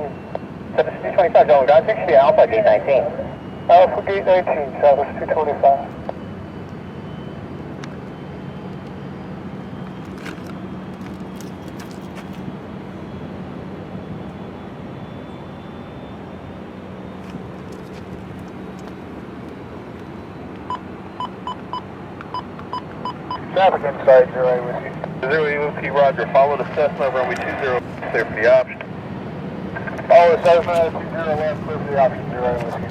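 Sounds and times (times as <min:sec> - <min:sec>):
aircraft engine noise: 0:00.0 - 0:32.9
short beeps: 0:20.7 - 0:23.5.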